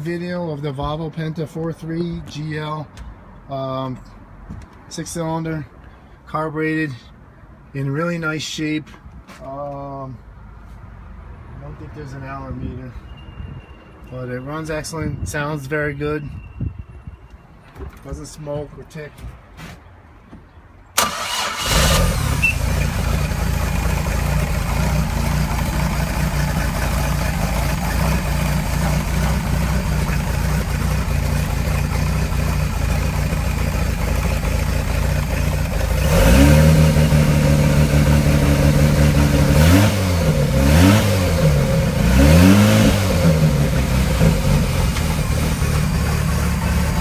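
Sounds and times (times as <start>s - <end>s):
boat engine idling and revving: 21.7s - 47.0s.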